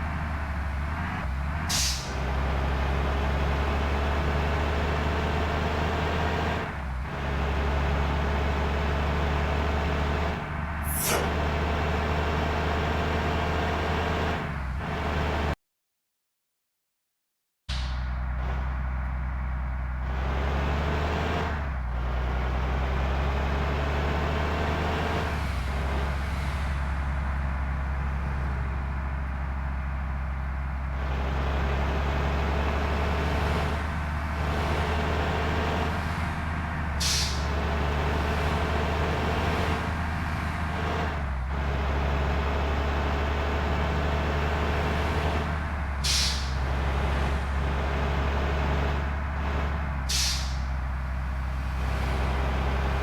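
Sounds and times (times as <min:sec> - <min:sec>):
bus diesel engine running: 0:00.0 - 0:15.6, 0:17.7 - 0:53.0
air brakes hissing: 0:01.7 - 0:02.2, 0:10.9 - 0:11.4, 0:37.0 - 0:37.6, 0:46.0 - 0:46.7, 0:50.1 - 0:50.8.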